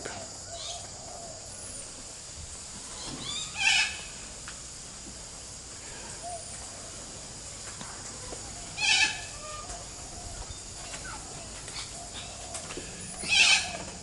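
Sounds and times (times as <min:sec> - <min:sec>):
parrot harsh call: 0:03.2 - 0:04.1, 0:08.8 - 0:09.6, 0:13.2 - 0:13.9.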